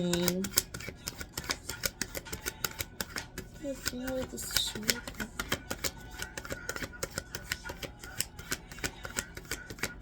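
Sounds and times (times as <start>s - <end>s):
cards being shuffled: 0.0s - 10.0s.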